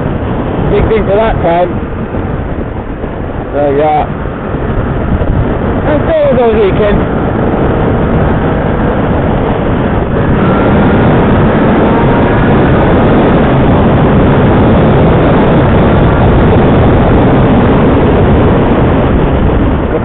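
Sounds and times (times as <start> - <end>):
wind noise on microphone: 0.0 - 20.0
motorcycle engine: 7.0 - 20.0.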